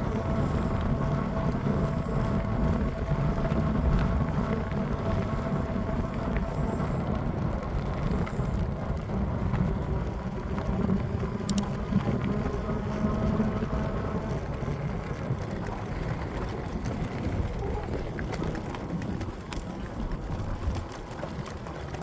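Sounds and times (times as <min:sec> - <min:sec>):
bike rolling noise: 0:00.0 - 0:22.0
wind rumble on microphone: 0:00.0 - 0:22.0.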